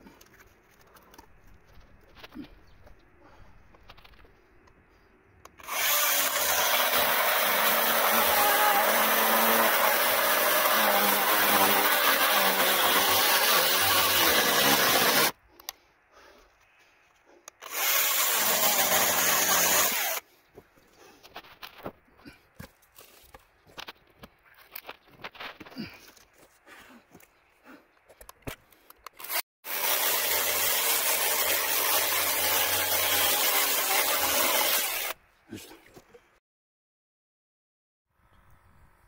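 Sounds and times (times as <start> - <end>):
electric saw cutting wood: 5.6 - 15.4, 17.6 - 20.2, 29.2 - 35.2.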